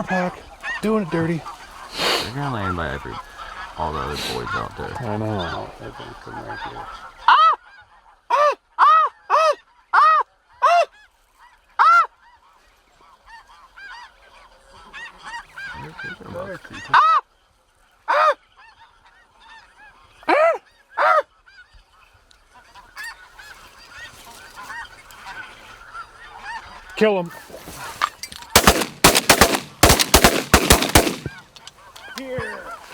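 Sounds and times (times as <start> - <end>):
goose honking: 0.0 - 11.0, 22.6 - 32.9
faint calling of geese: 0.0 - 32.9.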